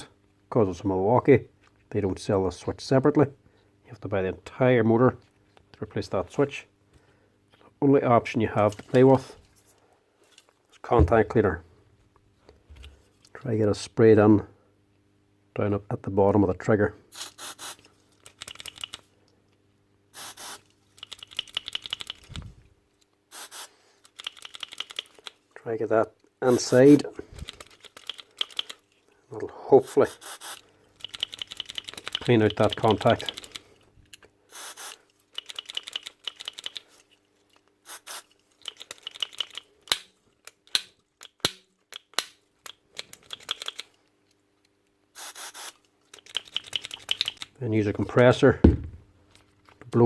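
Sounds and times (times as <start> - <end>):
aerosol spray hiss: 17.2 - 17.8, 20.2 - 20.6, 23.3 - 23.8, 30.1 - 30.6, 34.5 - 35.0, 37.9 - 38.3, 45.2 - 45.8
dull low thump: 48.6 - 49.0.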